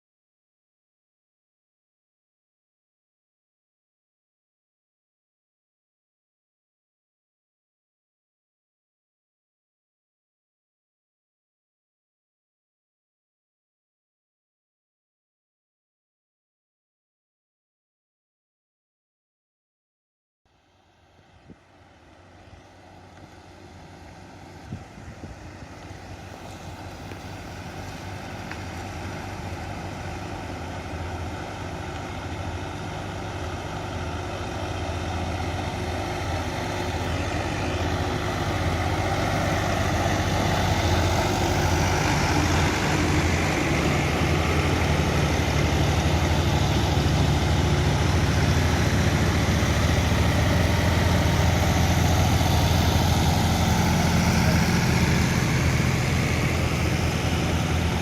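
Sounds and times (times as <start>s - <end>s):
heavy engine running: 20.6s - 58.0s.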